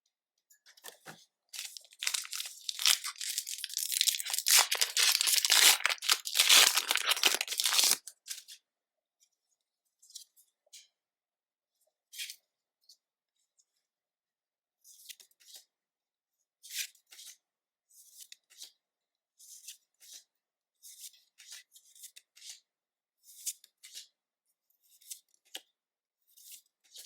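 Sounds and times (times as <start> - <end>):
foil wrapper crinkling and tearing: 1.6 - 8.4.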